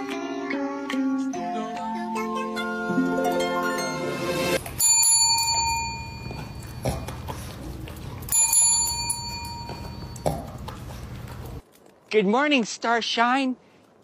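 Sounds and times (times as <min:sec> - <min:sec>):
small bell ringing: 0:04.7 - 0:06.8, 0:08.3 - 0:10.3.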